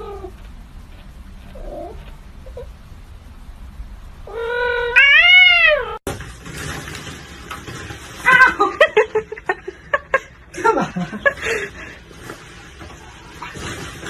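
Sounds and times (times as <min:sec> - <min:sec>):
cat meowing: 0:04.3 - 0:06.0.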